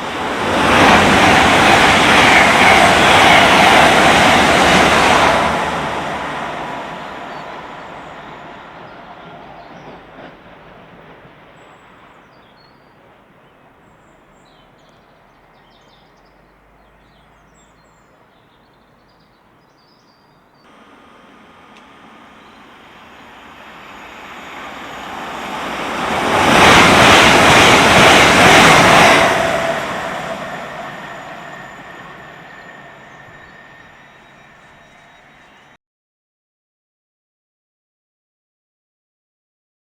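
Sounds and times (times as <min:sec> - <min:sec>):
train passing: 0:00.0 - 0:35.8
bird chirps: 0:11.6 - 0:20.7, 0:30.5 - 0:35.7.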